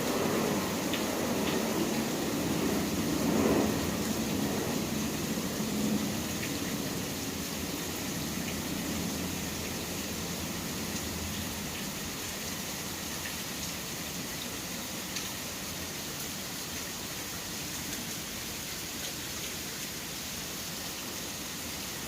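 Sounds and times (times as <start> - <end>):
city traffic rumble: 0.0 - 21.4
steady rain falling: 0.0 - 22.0
raindrop ticks: 0.7 - 2.4, 15.0 - 15.4.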